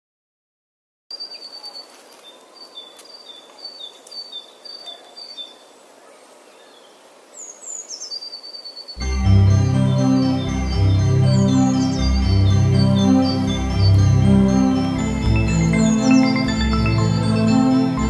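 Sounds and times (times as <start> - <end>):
organ-like keyboard music: 9.0 - 18.0.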